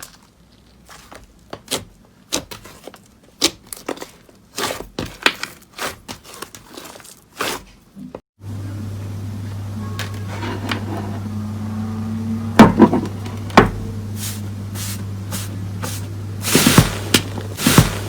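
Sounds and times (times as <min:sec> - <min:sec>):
steady low hum: 0:08.4 - 0:18.0.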